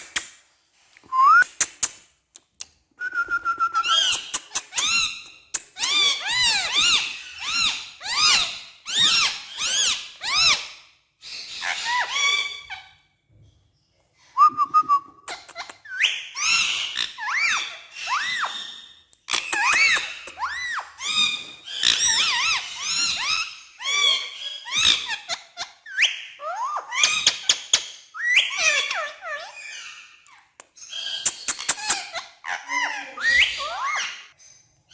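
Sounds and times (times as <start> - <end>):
sharp clicks: 1.4 - 2.8
parrot calling and whistling: 3.0 - 10.7, 31.1 - 34.3
parrot squeaky calls: 3.8 - 13.0, 14.9 - 34.9.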